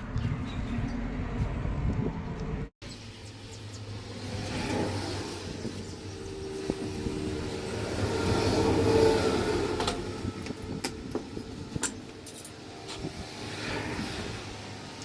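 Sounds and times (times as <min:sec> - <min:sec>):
motor vehicle passing: 0:03.6 - 0:11.8, 0:12.5 - 0:15.0.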